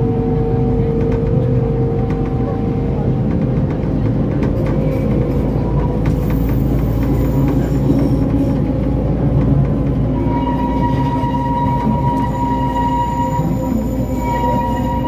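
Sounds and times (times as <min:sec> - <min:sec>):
train engine and wheels rumbling: 0:00.0 - 0:15.0
high wheel squeal: 0:10.1 - 0:15.0.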